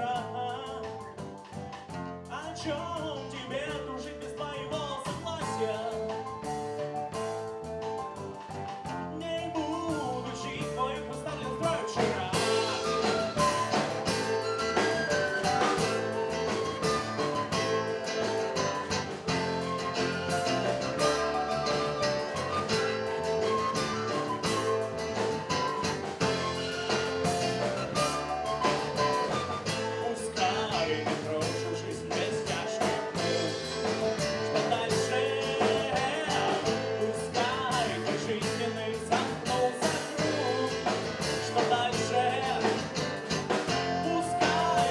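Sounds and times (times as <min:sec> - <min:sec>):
live rock band playing: 0:00.0 - 0:44.9
person singing: 0:09.1 - 0:13.8, 0:29.0 - 0:44.9.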